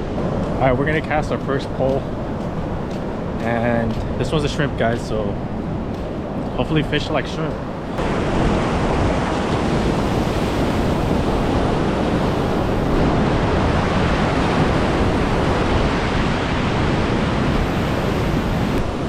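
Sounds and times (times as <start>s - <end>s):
ocean waves washing onto beach: 0.0s - 19.0s
wind rumbling on microphone: 0.0s - 19.0s.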